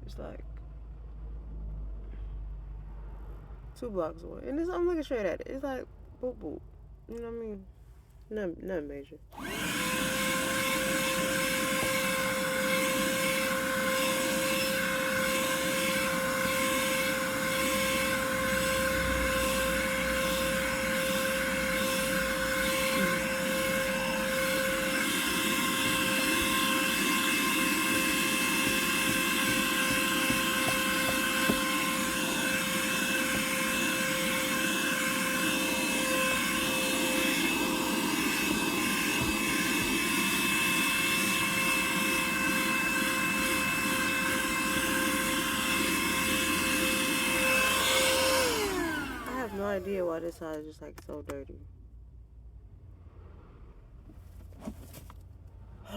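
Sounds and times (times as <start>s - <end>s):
hand vacuum motor whine: 9.3s - 50.3s.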